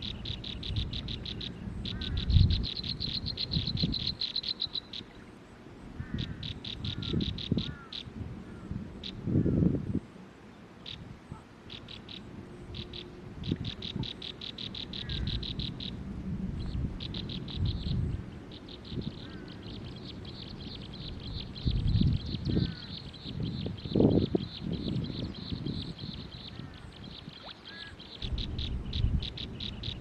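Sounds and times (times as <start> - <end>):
birds chipping: 0.0 - 5.4, 11.7 - 16.0, 16.6 - 30.0.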